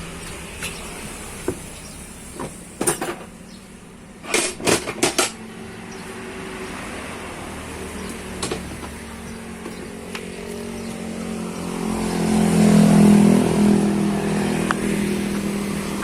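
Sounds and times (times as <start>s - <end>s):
metal tools clanking: 2.4s - 3.4s.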